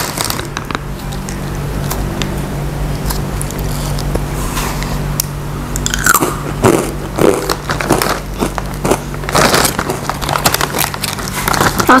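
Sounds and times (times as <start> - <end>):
child chewing crunchy snack: 2.9 - 12.0.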